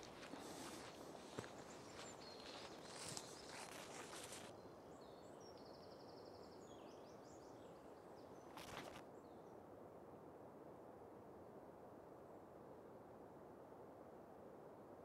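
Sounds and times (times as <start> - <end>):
rustling: 0.0 - 4.5, 8.5 - 9.0.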